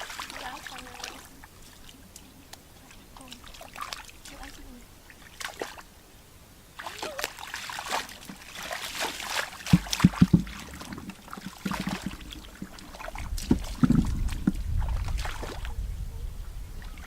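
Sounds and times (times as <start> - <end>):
water splashing and sloshing: 0.0 - 16.2
sharp knocks: 9.7 - 12.8.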